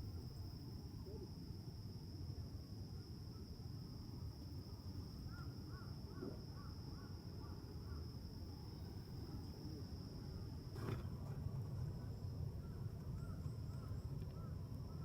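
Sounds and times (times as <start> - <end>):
insects droning: 0.0 - 15.0
low outdoor rumble: 8.9 - 15.0.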